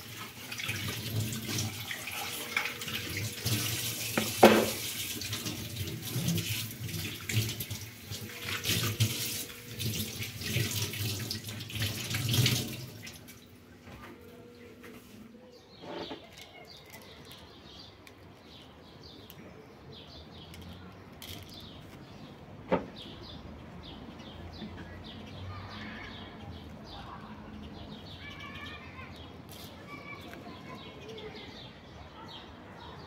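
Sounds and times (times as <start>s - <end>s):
small birds chirping: 13.0s - 33.0s.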